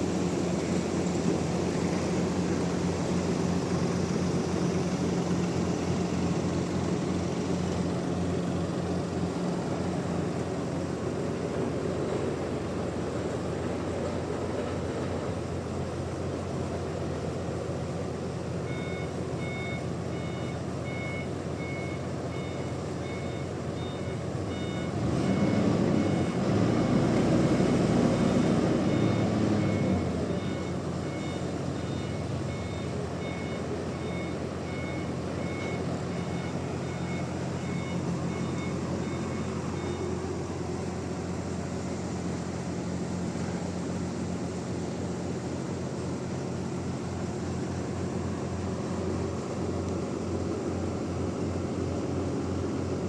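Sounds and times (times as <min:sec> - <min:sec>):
heavy engine running: 0:00.0 - 0:53.0
reversing alarm beeping: 0:18.6 - 0:45.1.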